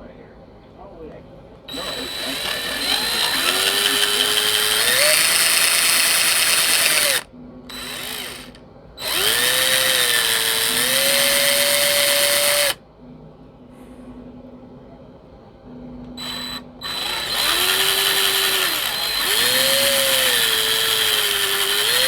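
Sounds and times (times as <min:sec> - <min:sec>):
power drill whine: 0:01.7 - 0:12.8, 0:16.2 - 0:22.0.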